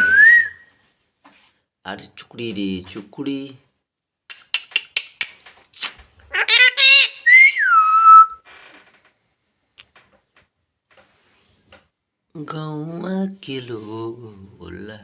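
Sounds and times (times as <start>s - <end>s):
parrot whistling: 0.0s - 0.6s, 5.8s - 8.4s
parrot clicking: 4.3s - 7.3s
parrot trilling: 5.8s - 8.4s.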